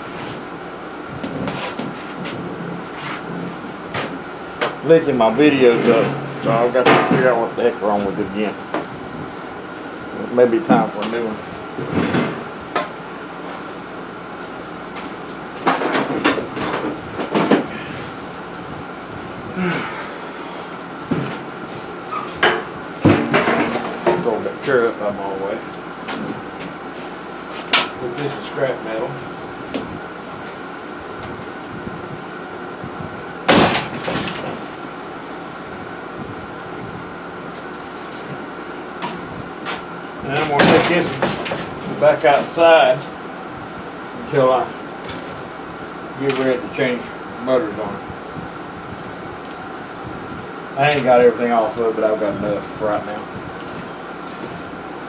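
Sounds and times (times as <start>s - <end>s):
steady hum: 0.0s - 55.0s
metal parts clattering and scraping: 5.4s - 7.3s, 21.0s - 24.4s, 33.5s - 34.8s, 37.7s - 38.4s, 40.4s - 42.0s.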